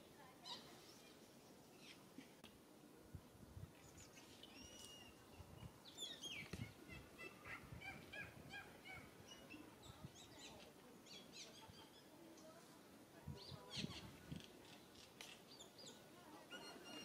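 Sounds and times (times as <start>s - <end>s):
small birds chirping: 0.1s - 2.2s, 3.7s - 12.2s, 13.3s - 17.0s.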